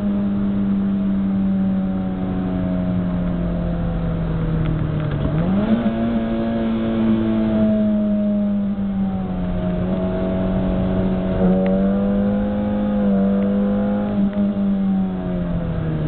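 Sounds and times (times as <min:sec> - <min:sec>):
car engine droning: 0:00.0 - 0:16.0.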